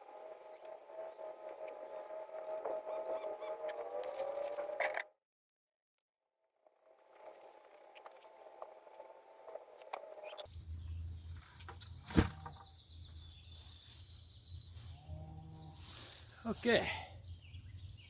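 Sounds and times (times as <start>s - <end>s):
insects chirring: 10.5s - 18.0s.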